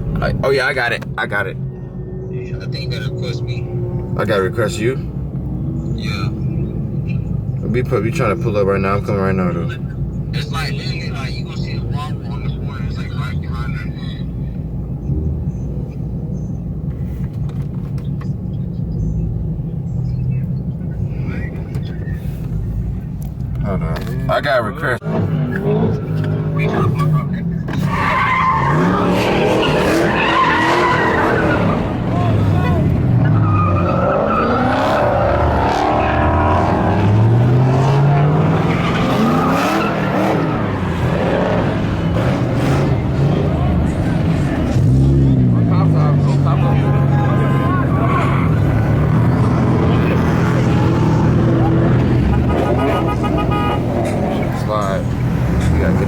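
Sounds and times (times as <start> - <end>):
car engine and road rumble: 0.0 - 56.0
tyres squealing: 25.4 - 56.0.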